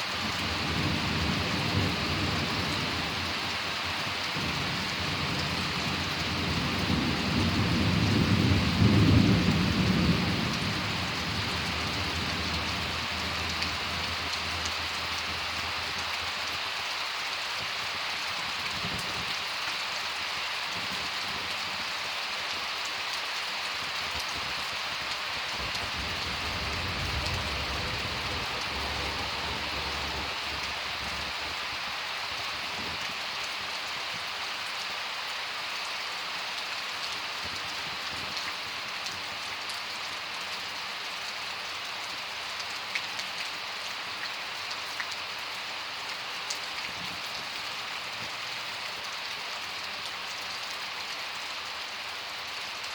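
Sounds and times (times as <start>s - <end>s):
heavy rain: 0.0s - 52.9s
thunder rumbling: 4.4s - 14.5s, 25.5s - 31.8s.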